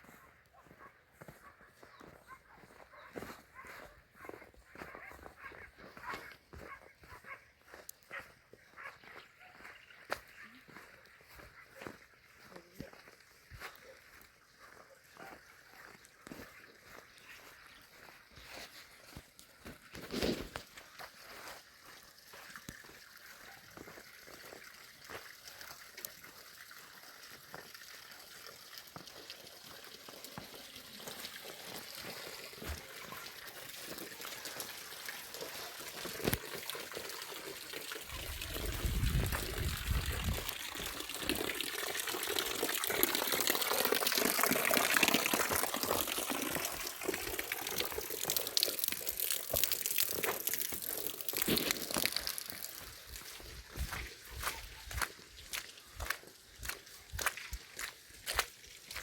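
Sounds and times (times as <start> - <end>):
water running and pouring: 19.8 - 59.0.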